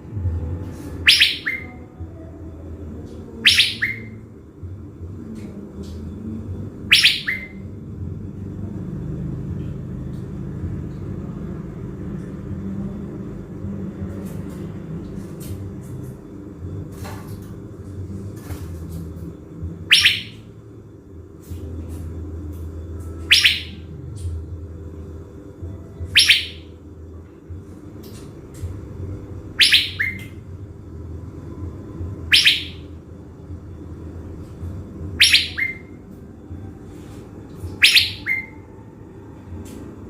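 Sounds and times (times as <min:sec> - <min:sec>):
steady low rumble: 0:00.0 - 0:40.0
songbird calls sweeping downward: 0:01.1 - 0:01.8, 0:03.4 - 0:04.1, 0:19.9 - 0:20.4, 0:23.3 - 0:23.8, 0:26.2 - 0:26.6, 0:32.3 - 0:32.8, 0:35.2 - 0:35.8.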